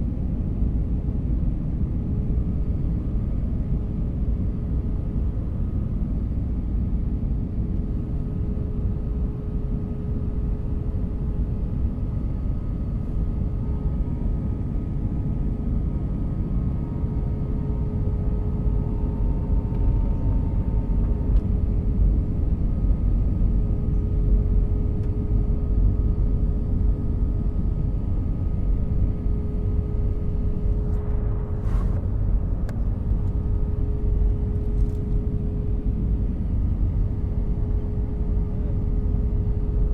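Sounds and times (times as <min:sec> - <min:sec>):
jet engine rumble: 0:00.0 - 0:39.9
steady cabin hum: 0:28.4 - 0:39.9.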